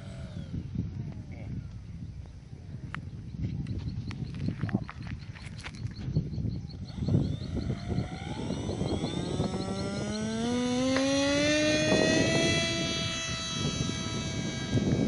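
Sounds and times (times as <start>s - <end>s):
model aircraft motor whine: 0.0s - 1.8s, 5.7s - 15.0s
low rumbling wind: 0.0s - 15.0s.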